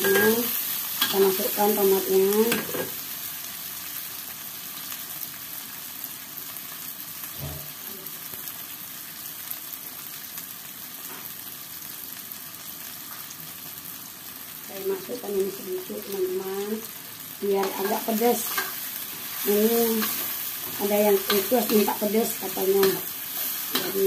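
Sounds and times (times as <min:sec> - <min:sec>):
metal spatula stir-frying: 0:00.0 - 0:03.6, 0:16.6 - 0:24.0
vegetables sizzling in oil: 0:00.0 - 0:24.0.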